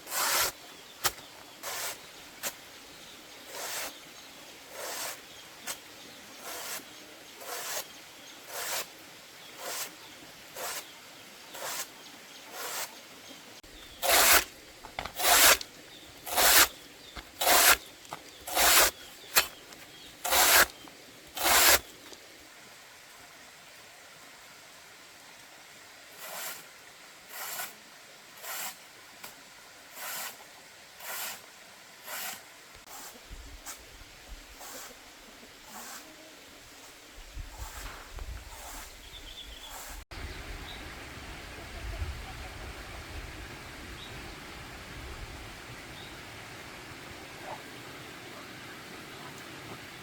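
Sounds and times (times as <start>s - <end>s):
knife cutting banana stems: 14.0s - 15.7s, 16.3s - 19.6s, 20.3s - 20.8s, 21.4s - 21.8s.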